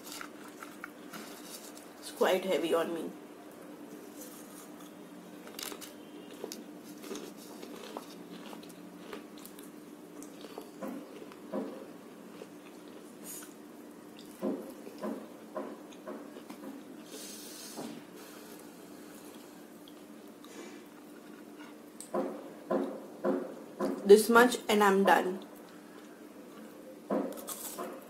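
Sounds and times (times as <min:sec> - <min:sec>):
faint steady hum: 0:00.0 - 0:28.0
person biting and chewing: 0:04.3 - 0:11.4, 0:26.0 - 0:28.0.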